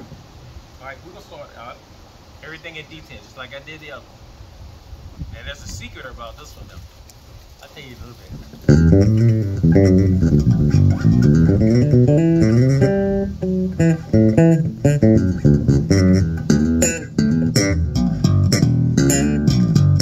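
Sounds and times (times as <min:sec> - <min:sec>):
electric bass plucked notes: 0:08.6 - 0:20.0.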